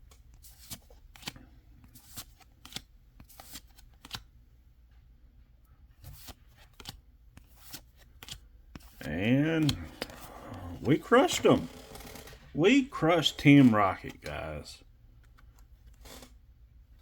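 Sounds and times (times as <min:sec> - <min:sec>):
cards flipped by hand: 0:00.1 - 0:04.3, 0:06.0 - 0:14.6.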